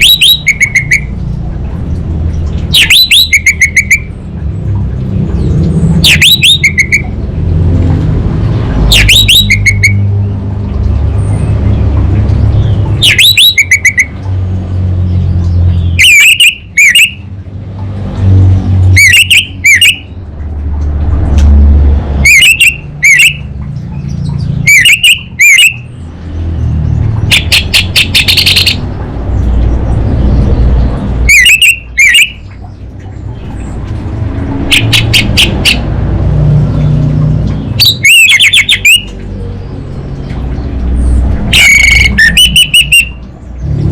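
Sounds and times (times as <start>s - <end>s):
thrush two-note calls: 0.0s - 1.2s, 2.7s - 4.1s, 6.0s - 7.2s, 8.9s - 10.1s, 13.0s - 14.2s, 16.0s - 17.2s, 18.9s - 20.1s, 22.2s - 23.6s, 24.6s - 25.9s, 27.3s - 28.8s, 31.2s - 32.6s, 41.5s - 43.2s
steady low rumble: 25.9s - 37.8s
fast rattling bird notes: 30.2s - 33.8s.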